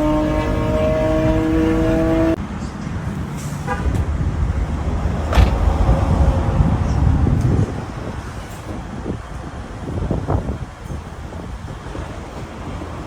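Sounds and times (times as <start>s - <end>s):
car engine rumbling: 0.0s - 9.1s.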